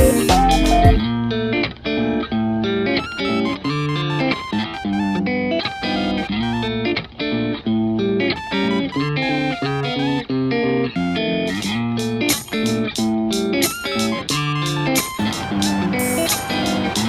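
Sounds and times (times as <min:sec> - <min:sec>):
bass line: 0:00.0 - 0:01.1
plucked guitar melody: 0:00.0 - 0:17.0.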